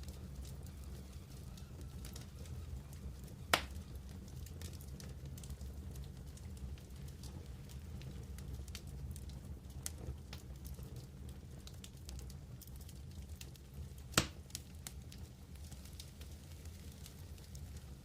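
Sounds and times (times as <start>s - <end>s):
wood fire crackling: 0.0s - 18.0s
loud fire pop: 3.5s - 3.8s, 14.1s - 14.4s.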